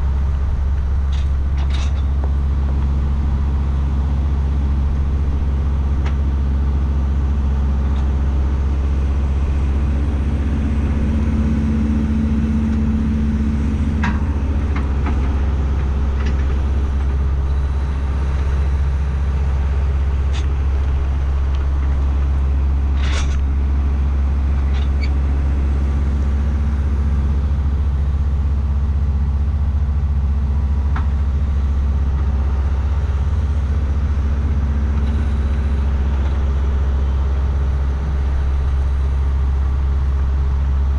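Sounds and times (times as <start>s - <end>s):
tractor engine running: 0.0s - 40.9s
clanks and rattles: 0.3s - 3.0s, 19.8s - 23.5s.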